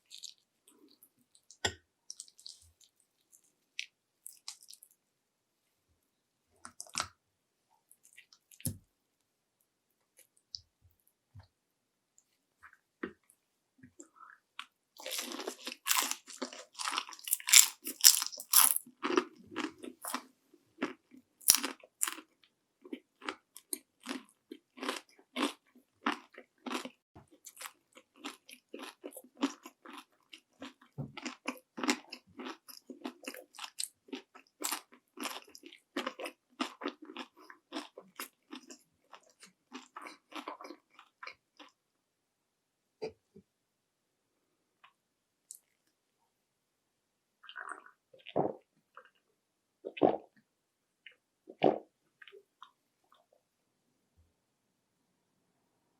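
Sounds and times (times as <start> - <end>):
crunchy chewing of fried food: 0.0 - 5.0, 14.0 - 41.8.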